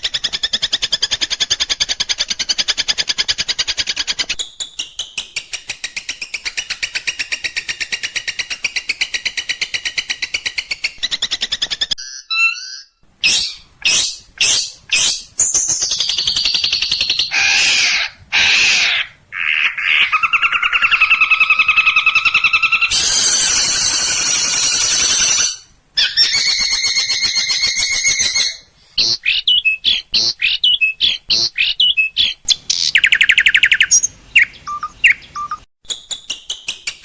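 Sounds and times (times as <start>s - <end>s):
bird harsh scolding calls: 12.3s - 29.5s
bird two-pitched trill: 22.9s - 28.7s.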